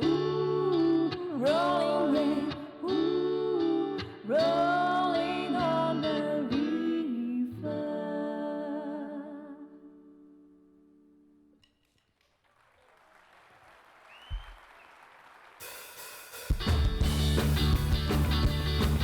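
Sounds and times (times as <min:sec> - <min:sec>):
live band and singers: 0:00.0 - 0:08.0
audience applause: 0:12.2 - 0:16.0.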